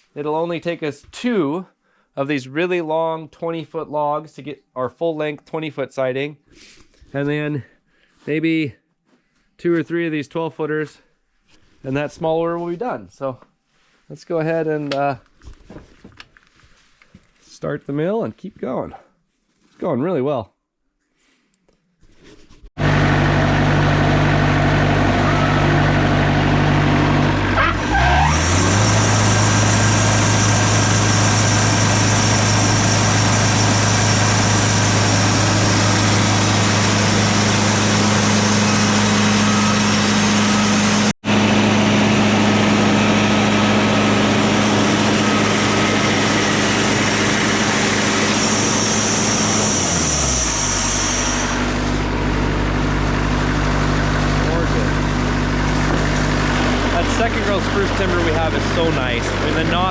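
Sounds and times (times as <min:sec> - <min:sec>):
sawmill engine running: 0:22.8 - 0:59.9
band blade sawing timber: 0:27.4 - 0:53.4.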